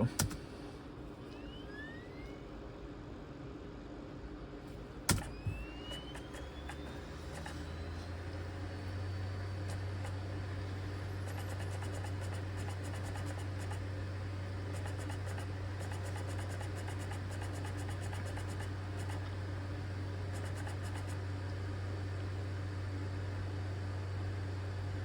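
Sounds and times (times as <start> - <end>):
low drive hum: 0.0 - 25.0
cd drive seeking ticks: 5.1 - 5.4, 6.2 - 7.7, 9.4 - 10.4, 11.2 - 13.8, 14.7 - 19.4.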